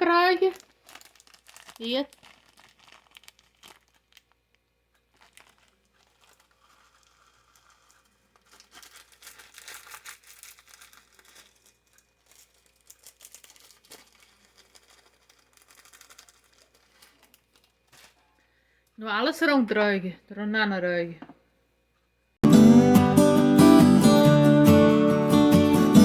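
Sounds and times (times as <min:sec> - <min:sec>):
plastic packet crinkling: 0:00.0 - 0:18.3.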